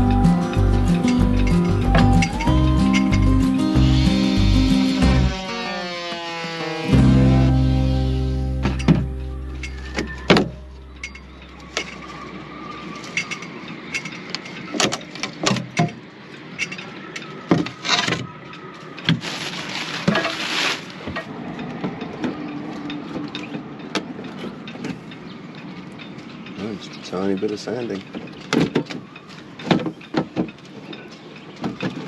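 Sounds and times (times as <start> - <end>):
wooden parts knocking and clicking: 28.0 - 32.0.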